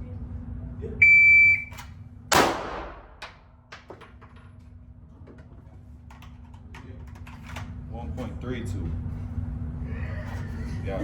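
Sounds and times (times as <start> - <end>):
shot timer beep: 1.0 - 1.8
pistol shot echoing indoors: 2.3 - 3.4.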